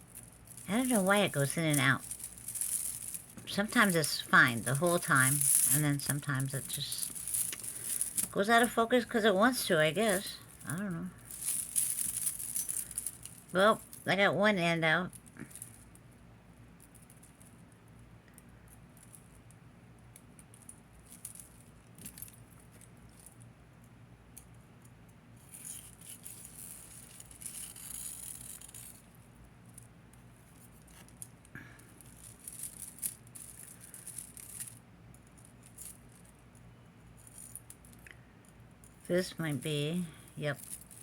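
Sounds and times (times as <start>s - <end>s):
jewelry chains jingling: 0.0s - 14.4s, 25.4s - 29.8s, 30.4s - 38.0s, 38.8s - 41.0s.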